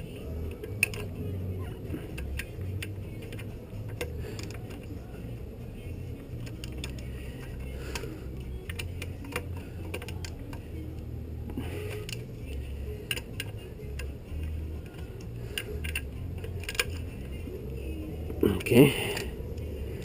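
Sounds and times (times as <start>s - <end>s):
metal tools clicking and clinking: 0.5s - 1.1s, 2.0s - 4.9s, 13.0s - 17.1s.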